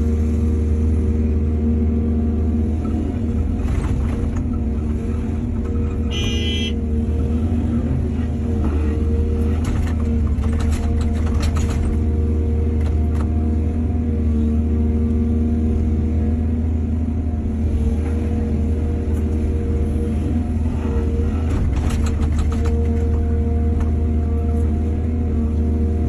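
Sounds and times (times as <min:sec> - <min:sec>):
excavator diesel engine humming: 0:00.0 - 0:26.0
brief high tone: 0:06.1 - 0:06.8.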